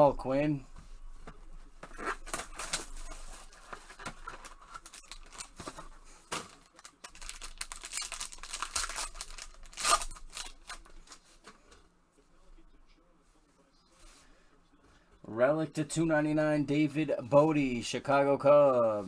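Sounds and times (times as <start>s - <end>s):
wrapper and cardboard rustling: 0.0s - 11.8s.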